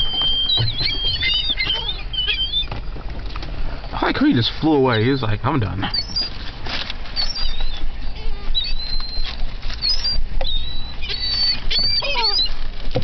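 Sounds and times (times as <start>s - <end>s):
steady low rumble: 0.0s - 11.9s
gulls calling: 0.0s - 13.0s.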